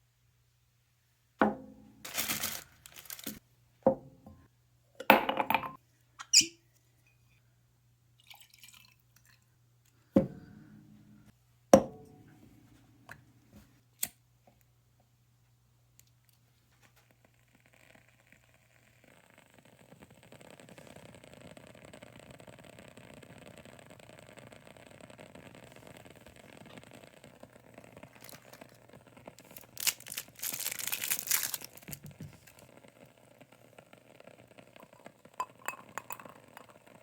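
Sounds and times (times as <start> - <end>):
objects knocking and clinking: 5.1 - 5.8
steady low hum: 10.0 - 13.8.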